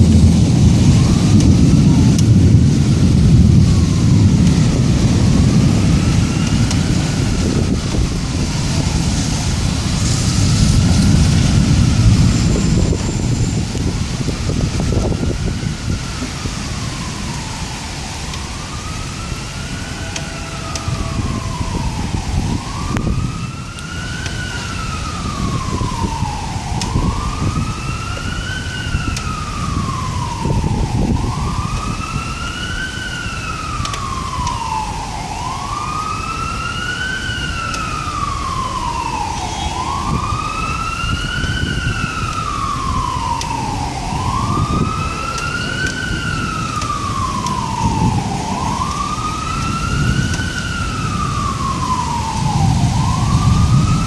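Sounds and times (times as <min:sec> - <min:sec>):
emergency siren wailing: 0:00.0 - 0:54.0
storm rain and wind: 0:00.0 - 0:54.0.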